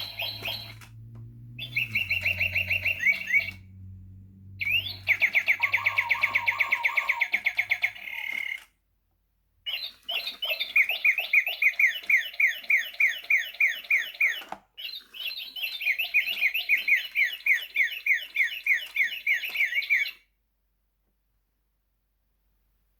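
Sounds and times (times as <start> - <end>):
toy bird electronic chirps: 0.0 - 0.9, 1.6 - 3.6, 4.6 - 8.7, 9.7 - 20.2.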